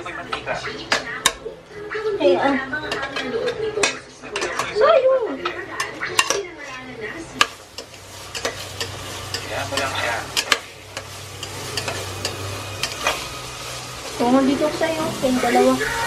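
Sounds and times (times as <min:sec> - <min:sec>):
hotdog sizzling in a pot: 0:00.0 - 0:16.0
spatula scraping and knocking pot: 0:07.4 - 0:13.2.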